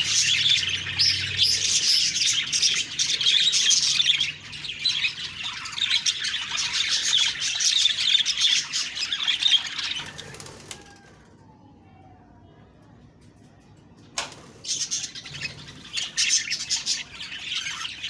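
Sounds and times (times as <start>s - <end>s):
budgerigars chattering: 0.0s - 10.5s, 14.6s - 18.0s.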